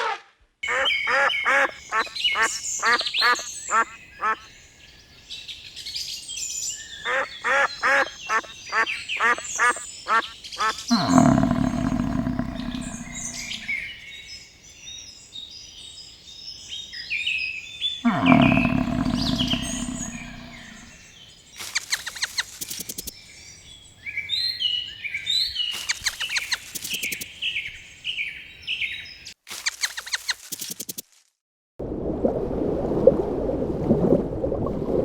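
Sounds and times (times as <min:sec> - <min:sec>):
farm bird calling: 0:00.6 - 0:04.5, 0:06.9 - 0:13.9, 0:18.0 - 0:21.0
small chirps: 0:10.6 - 0:13.8, 0:18.0 - 0:21.0, 0:21.6 - 0:23.2, 0:25.6 - 0:27.4, 0:29.3 - 0:31.3.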